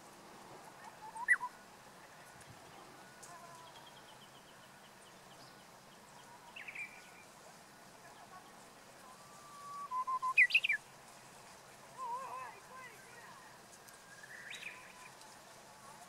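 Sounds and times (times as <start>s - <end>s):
bird singing: 0.8s - 1.6s, 2.6s - 7.3s, 9.0s - 10.8s, 13.9s - 15.2s.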